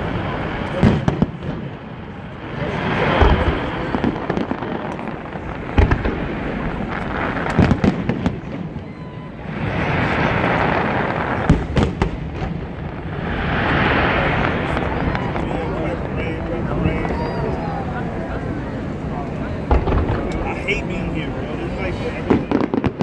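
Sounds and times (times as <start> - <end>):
dense crackling noise: 0.0 - 23.0
fireworks booming: 0.0 - 23.0.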